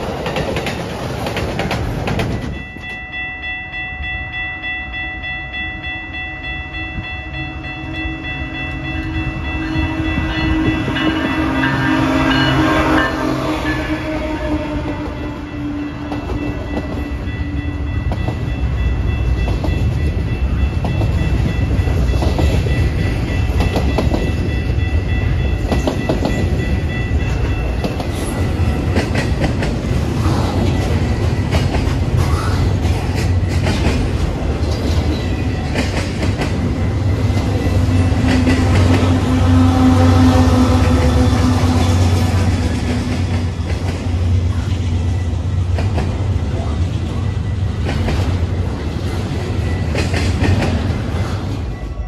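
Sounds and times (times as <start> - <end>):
wheels clicking over rail joints: 0.0 - 3.2, 25.5 - 39.4
train passing: 0.0 - 52.0.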